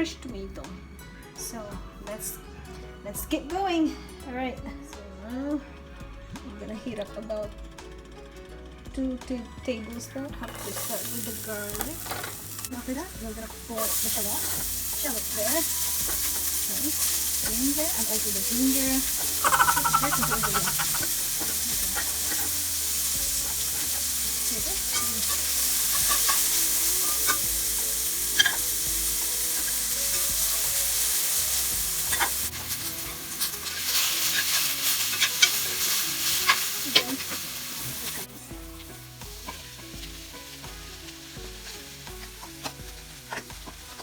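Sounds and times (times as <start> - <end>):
aromatics sizzling in hot oil: 10.2 - 44.0
utensil clicking and scraping pan: 10.4 - 44.0.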